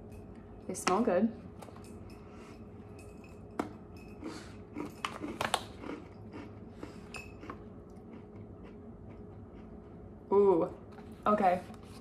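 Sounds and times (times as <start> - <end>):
crunchy chewing of cookie: 4.0 - 10.3.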